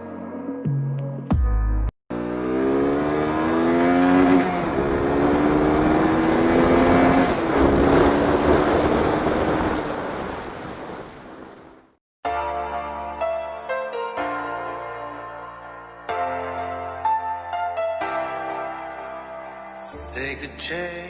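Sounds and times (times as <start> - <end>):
motorcycle engine accelerating: 2.1 - 12.0.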